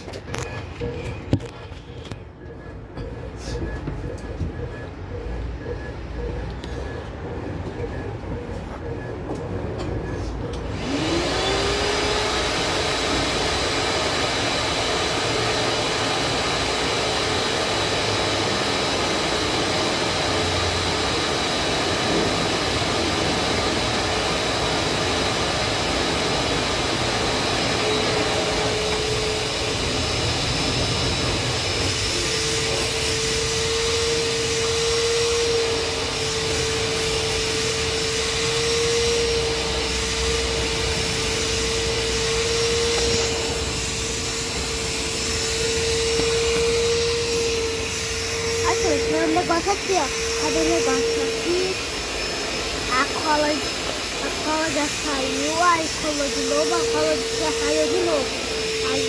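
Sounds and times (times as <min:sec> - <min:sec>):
washing machine motor whining: 0:00.0 - 0:59.0
loud rushing air noise: 0:19.9 - 0:59.0.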